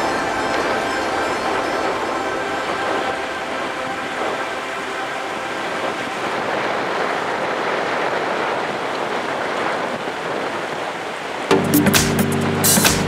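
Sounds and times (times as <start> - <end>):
music: 0.0 - 5.2, 11.5 - 13.0
rushing water: 0.0 - 13.0
wind: 0.0 - 13.0.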